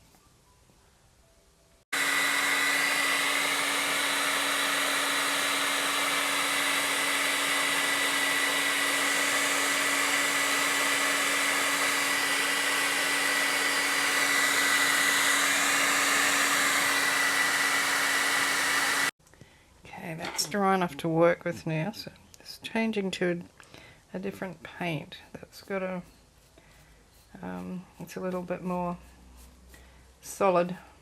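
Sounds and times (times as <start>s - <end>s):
hair dryer blowing: 1.9s - 19.2s.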